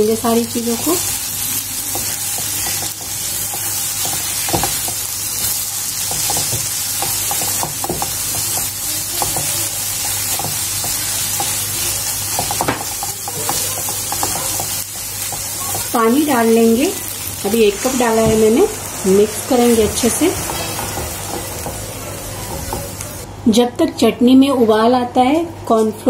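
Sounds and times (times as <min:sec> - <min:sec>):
paste sizzling in oil: 0:00.0 - 0:23.3
spatula scraping pan: 0:17.4 - 0:23.2.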